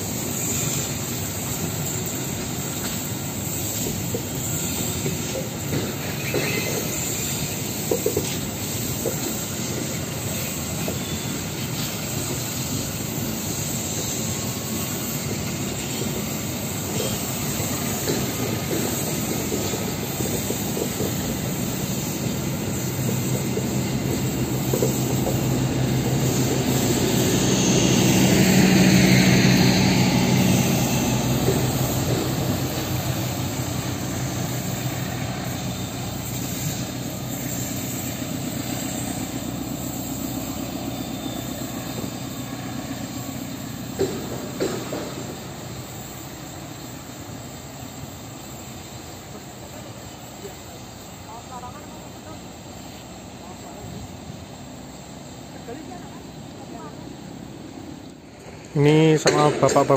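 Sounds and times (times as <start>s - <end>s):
wheels clacking over rail joints: 0.0s - 12.4s, 15.0s - 46.1s.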